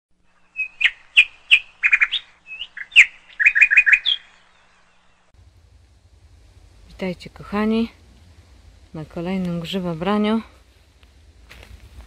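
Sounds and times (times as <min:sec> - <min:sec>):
songbird chirping: 0:00.2 - 0:05.4.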